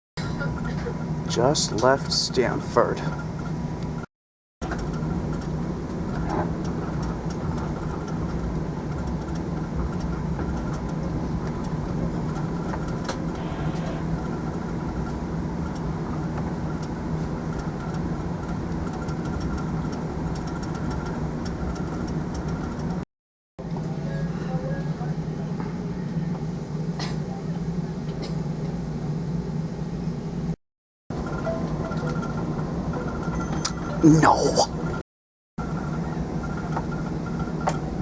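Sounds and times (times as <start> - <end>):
train running rumble: 0.2 - 23.0.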